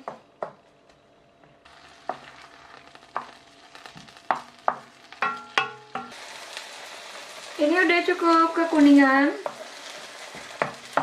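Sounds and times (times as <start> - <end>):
onion sizzling in frying pan: 1.6 - 11.0.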